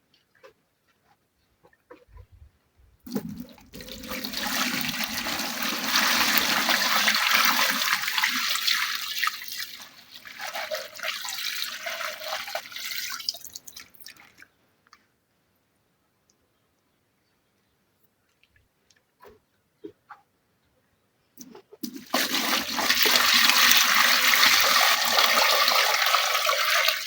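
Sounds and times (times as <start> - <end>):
water rushing and splashing: 3.1 - 13.4.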